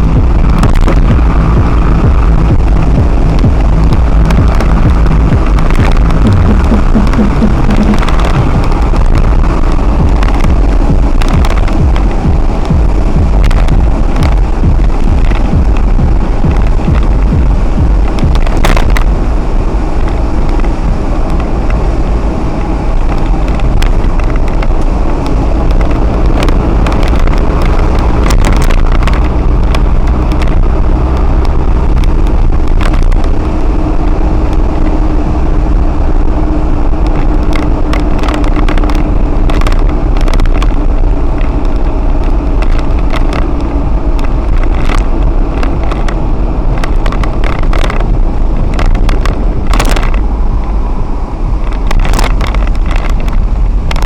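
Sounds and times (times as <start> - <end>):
scattered sharp ticks: 0.0 - 19.2, 22.6 - 35.1, 37.0 - 50.3, 51.6 - 54.0
lorry road and engine rumble: 0.0 - 54.0.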